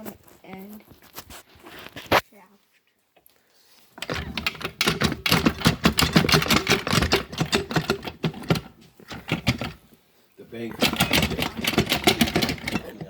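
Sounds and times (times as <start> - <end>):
metallic clicking and rattling: 4.0 - 9.9, 10.7 - 13.0.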